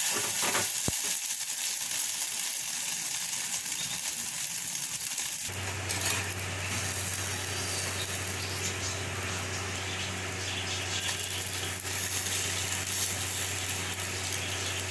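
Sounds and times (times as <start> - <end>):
food sizzling in a pan: 0.0 - 14.9
constant low hum: 5.4 - 14.9.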